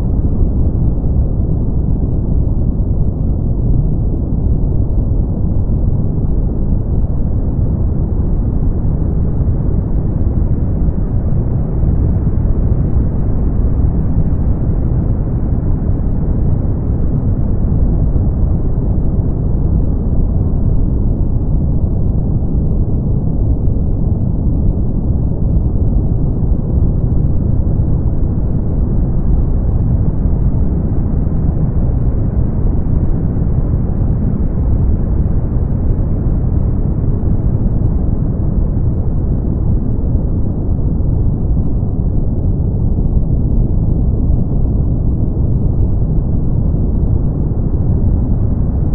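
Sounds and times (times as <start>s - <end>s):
brown noise: 0.0s - 48.9s.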